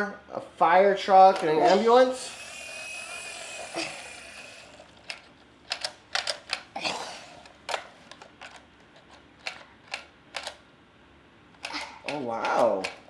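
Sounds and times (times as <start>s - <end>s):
toy scraping: 1.1s - 6.6s, 11.6s - 13.0s
toy vehicles clicking and clacking: 1.2s - 10.6s, 11.6s - 13.0s.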